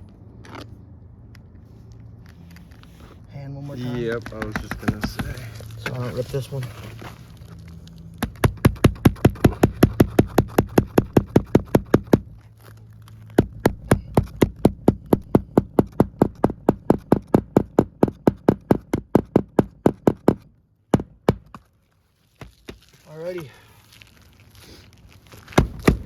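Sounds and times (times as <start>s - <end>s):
hammer tapping nails into shingles: 4.0s - 6.0s, 8.2s - 12.4s, 13.4s - 21.7s, 25.6s - 26.0s.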